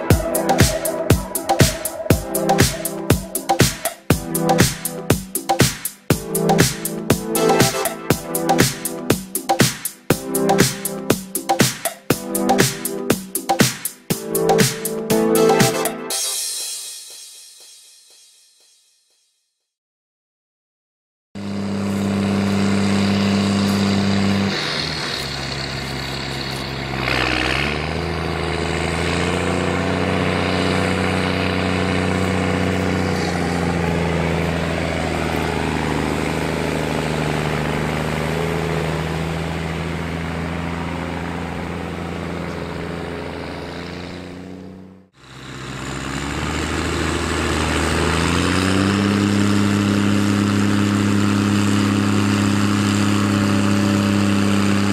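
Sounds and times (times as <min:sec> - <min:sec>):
tractor diesel engine under load: 0:21.4 - 0:54.9.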